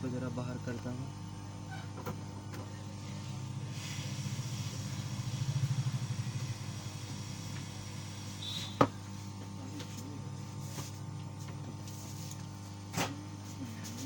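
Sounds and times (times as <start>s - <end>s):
hot air station hum and hiss: 0.0s - 14.0s.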